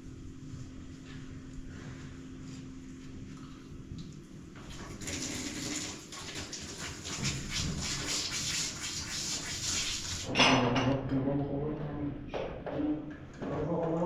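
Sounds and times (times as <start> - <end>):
water running: 4.0 - 10.4.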